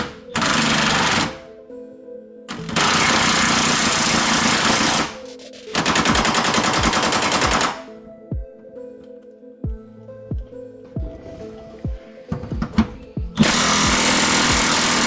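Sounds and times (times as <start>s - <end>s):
background music: 0.0s - 15.0s
impact wrench hammering: 5.8s - 7.8s, 13.4s - 15.0s.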